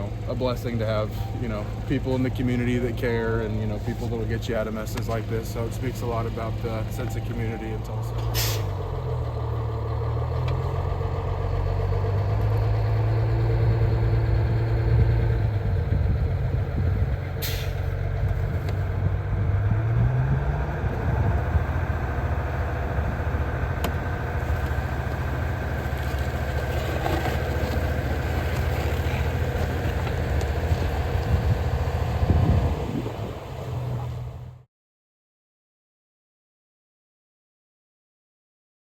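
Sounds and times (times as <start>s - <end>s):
large vehicle engine revving: 0.0s - 34.6s
brief hiss: 8.3s - 8.7s.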